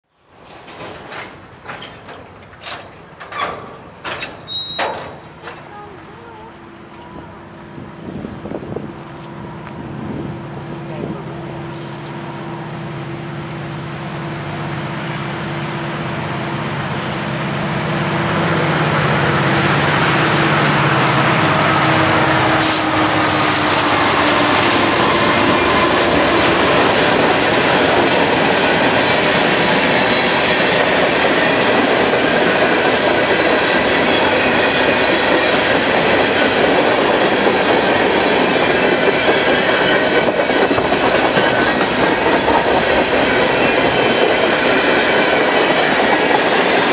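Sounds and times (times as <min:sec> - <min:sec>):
wheel-on-rail noise: 0:00.2 - 0:10.2, 0:19.2 - 0:46.9
diesel locomotive engines droning: 0:00.2 - 0:46.9
high wheel squeals: 0:04.3 - 0:05.6.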